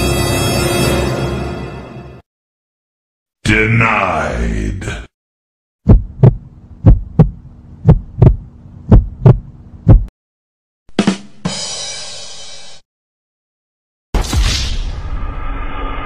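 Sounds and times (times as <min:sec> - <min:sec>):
heartbeat thumps: 0:05.8 - 0:10.1
low steady hum: 0:05.9 - 0:10.1.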